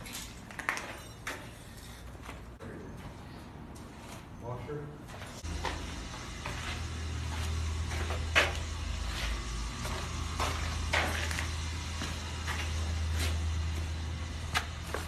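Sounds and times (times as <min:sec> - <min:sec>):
low machine hum: 0:01.6 - 0:15.0.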